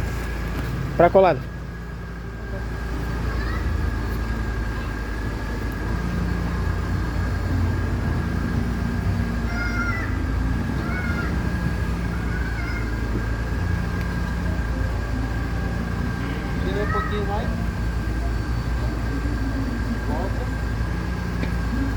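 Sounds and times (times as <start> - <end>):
car engine idling: 0.0 - 21.9
high whine: 0.0 - 21.9.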